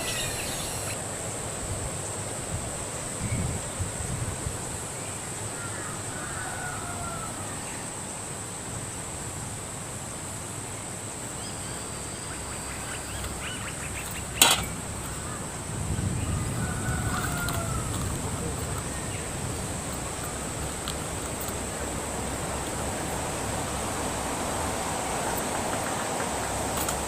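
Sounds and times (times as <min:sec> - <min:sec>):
high-pitched insect drone: 0:00.0 - 0:01.2
sharp knock: 0:14.4 - 0:14.8.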